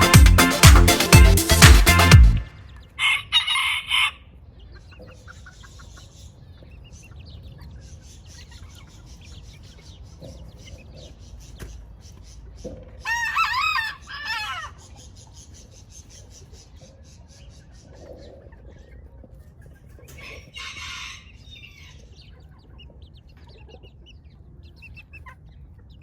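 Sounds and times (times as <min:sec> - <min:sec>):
chickens short loud calls: 0:02.9 - 0:04.4, 0:13.0 - 0:14.9
soft chicken clucking: 0:03.0 - 0:26.0
rooster crowing: 0:13.1 - 0:14.7.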